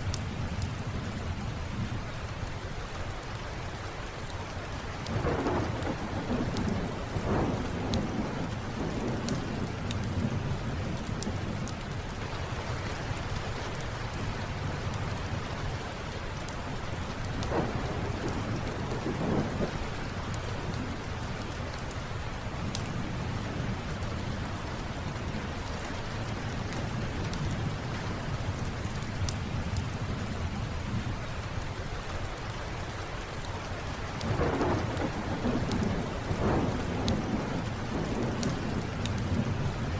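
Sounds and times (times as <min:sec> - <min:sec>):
steady rain: 0:00.0 - 0:39.9
low thunder rumbling: 0:05.1 - 0:12.6, 0:16.7 - 0:21.6, 0:34.2 - 0:39.9.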